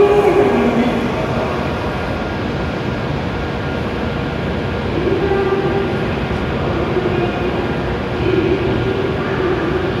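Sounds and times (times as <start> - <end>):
faint droning tone: 0.0 - 3.3
train rumble and hum: 0.0 - 10.0.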